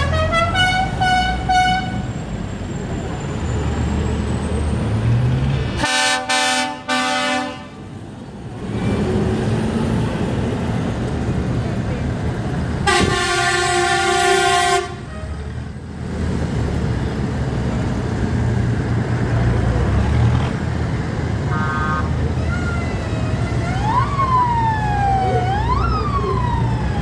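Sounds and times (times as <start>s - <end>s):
tractor engines rumbling: 0.0s - 27.0s
horn blast: 21.5s - 22.4s
siren wailing: 21.5s - 27.0s.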